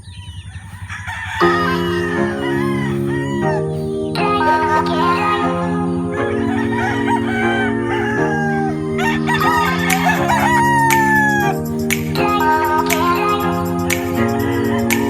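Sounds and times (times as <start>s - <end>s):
chickens clucking: 0.0s - 15.0s
rooster crowing: 0.4s - 11.8s
background music with sustained chords: 1.4s - 15.0s.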